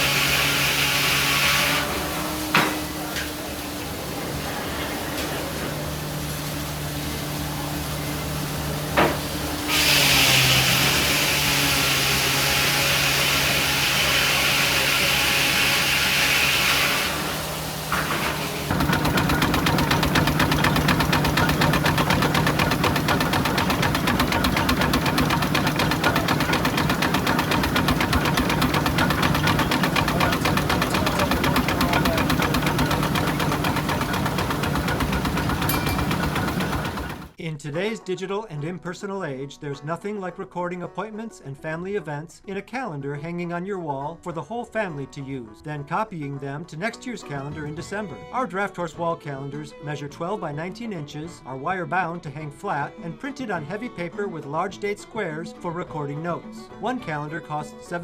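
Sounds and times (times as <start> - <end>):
machinery engine running: 2.4 - 11.7, 17.0 - 37.4
loud hiss: 7.4 - 11.8
fast rhythmic clatter: 18.7 - 37.4.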